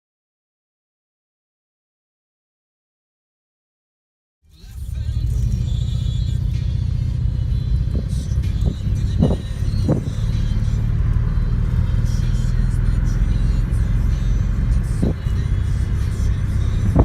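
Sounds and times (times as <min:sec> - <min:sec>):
music playing: 0:04.5 - 0:17.0
car cabin rumble: 0:04.7 - 0:17.0.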